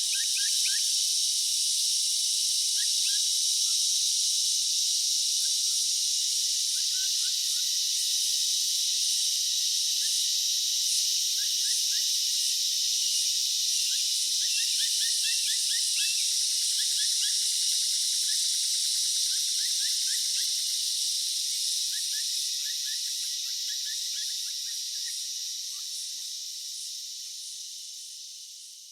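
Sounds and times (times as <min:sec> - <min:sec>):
insect chorus hiss: 0:00.0 - 0:28.9
quick insect chirps: 0:12.7 - 0:28.9.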